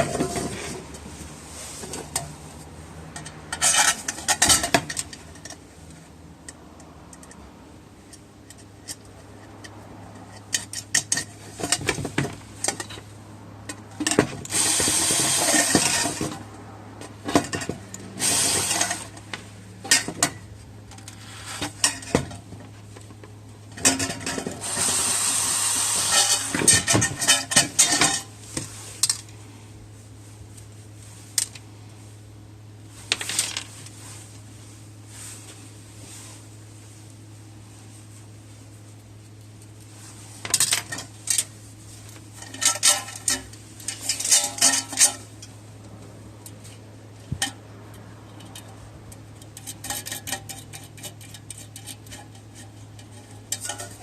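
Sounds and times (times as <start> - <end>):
metal scraping: 0.0 - 5.6, 13.7 - 22.5, 23.7 - 28.3, 42.3 - 45.6, 46.6 - 54.0.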